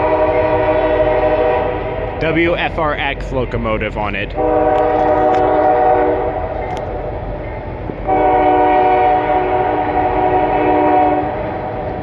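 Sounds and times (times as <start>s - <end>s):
locomotive air horn blasts: 0.0s - 2.1s, 4.4s - 6.8s, 8.0s - 11.6s
train rumble: 0.0s - 12.0s.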